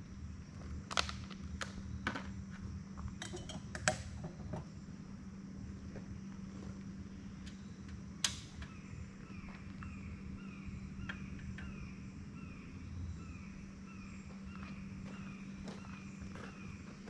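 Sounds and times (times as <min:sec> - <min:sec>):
low steady hum: 0:00.0 - 0:17.0
campfire pops and crackles: 0:00.9 - 0:01.8.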